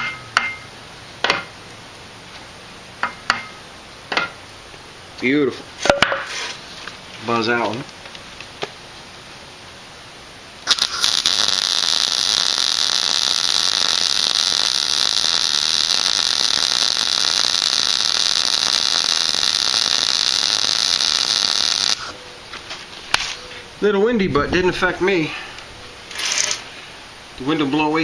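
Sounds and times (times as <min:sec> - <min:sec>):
welder sizzling hiss: 0:10.6 - 0:22.2.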